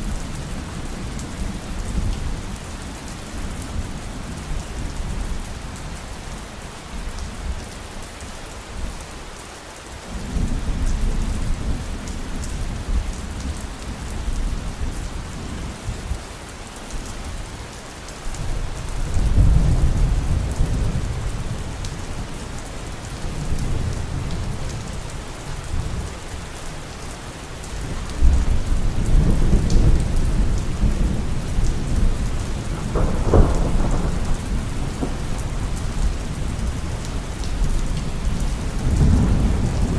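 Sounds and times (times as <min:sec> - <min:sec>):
heavy rain: 0:00.0 - 0:39.9
rolling thunder: 0:28.2 - 0:39.9
sharp thunderclap: 0:31.8 - 0:36.6.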